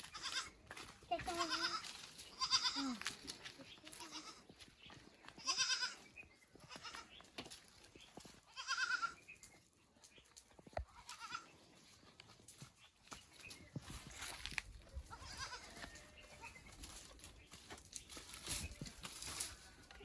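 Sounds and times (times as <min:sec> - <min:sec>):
goats bleating: 0:00.0 - 0:00.6, 0:01.2 - 0:03.3, 0:03.9 - 0:04.5, 0:05.4 - 0:07.1, 0:08.5 - 0:09.2, 0:11.0 - 0:11.5, 0:15.1 - 0:16.0.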